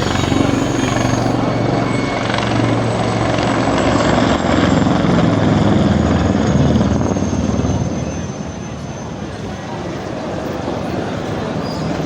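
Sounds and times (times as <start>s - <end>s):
helicopter roaring in flight: 0.0s - 8.4s.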